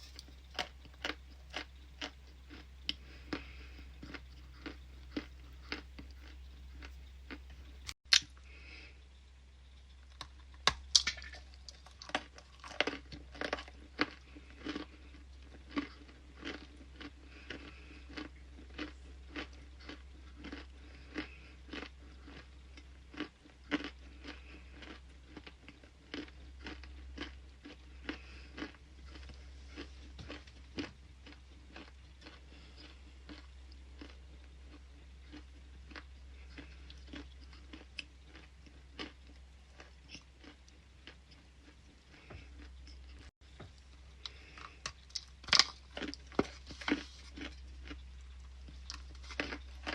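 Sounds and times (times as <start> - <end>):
crunchy chewing: 0.0 - 9.0, 9.7 - 49.9
sharp snaps of biting: 8.1 - 8.4.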